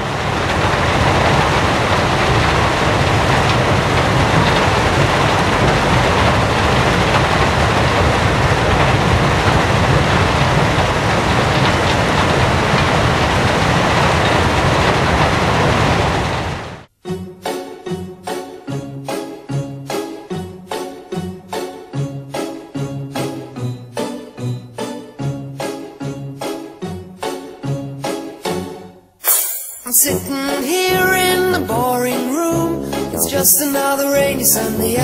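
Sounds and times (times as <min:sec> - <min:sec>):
loud steady rushing noise: 0:00.0 - 0:16.9.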